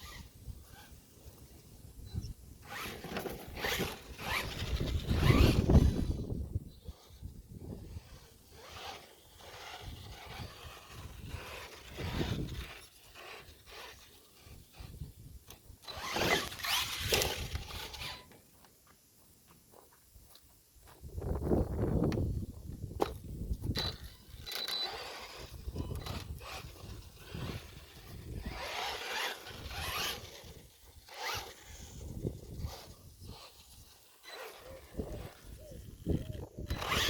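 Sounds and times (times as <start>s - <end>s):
electric toy truck motor whine: 0.0s - 18.4s, 23.5s - 37.0s
tyre noise: 2.6s - 18.6s.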